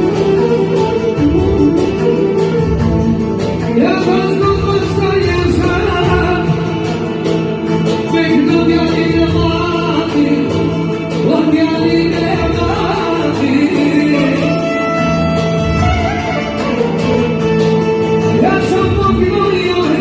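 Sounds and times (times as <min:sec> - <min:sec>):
person singing: 0:03.6 - 0:17.2.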